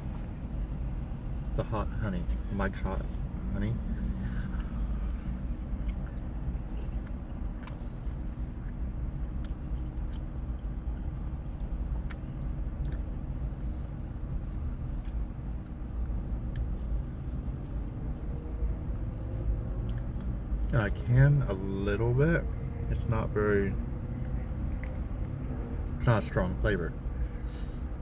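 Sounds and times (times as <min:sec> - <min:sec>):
steady low hum: 0:00.0 - 0:28.0
person chewing pasta: 0:04.2 - 0:08.8, 0:09.4 - 0:20.7.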